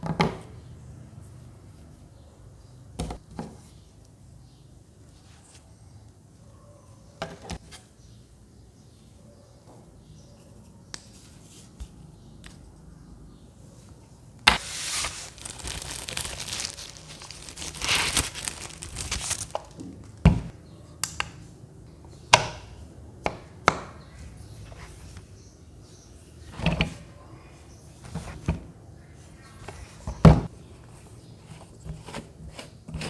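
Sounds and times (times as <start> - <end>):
plastic wrapping crinkling and tearing: 14.5 - 19.9.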